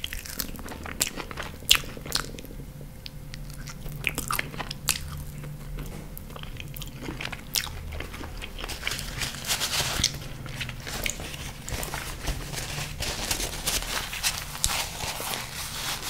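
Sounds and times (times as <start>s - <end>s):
paper napkin rustling: 8.0s - 16.0s.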